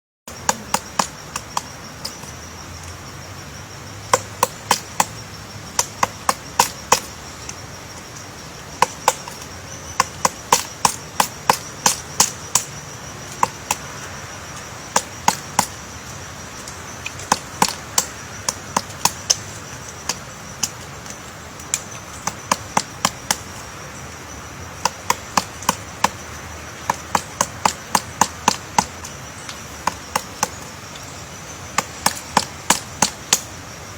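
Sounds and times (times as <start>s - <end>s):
woodpecker tapping on wood: 0.3s - 2.4s, 4.1s - 8.1s, 8.7s - 23.9s, 24.8s - 33.5s.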